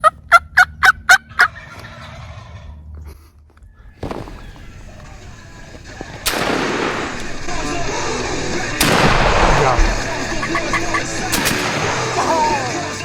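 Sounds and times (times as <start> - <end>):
music: 0.9 - 13.0
shotgun shot: 4.0 - 12.5
voices: 4.0 - 13.0.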